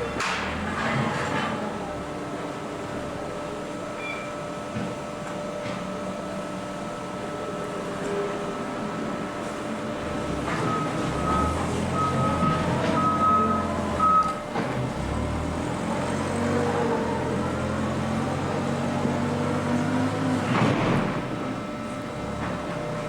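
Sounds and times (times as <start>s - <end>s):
baler and conveyor machinery humming: 0.0s - 23.0s
backup alarm beeping: 10.6s - 14.4s.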